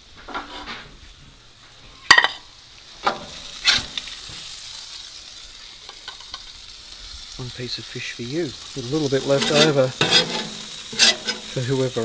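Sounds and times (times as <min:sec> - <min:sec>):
food sizzling on hotplate: 0:00.0 - 0:12.0
metal utensil scraping hotplate: 0:00.3 - 0:00.8, 0:03.0 - 0:04.1, 0:08.9 - 0:12.0.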